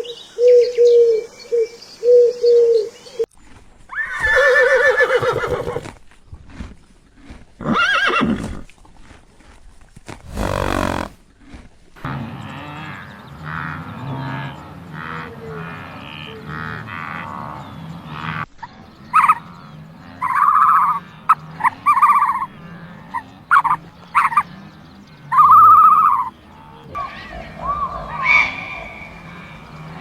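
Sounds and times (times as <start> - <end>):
frogs croaking in chorus: 18.9 - 30.0.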